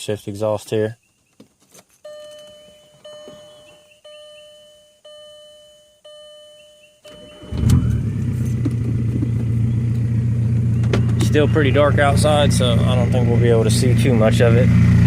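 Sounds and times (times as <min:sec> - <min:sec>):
car warning chime: 0:02.0 - 0:08.1
diesel engine cranking and starting: 0:07.1 - 0:15.0
loud diesel engine idling: 0:09.5 - 0:15.0.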